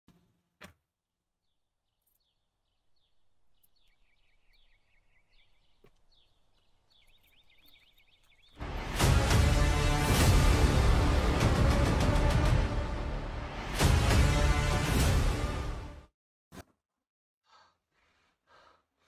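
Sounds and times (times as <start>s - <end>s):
faint bird chirping: 1.4s - 8.6s.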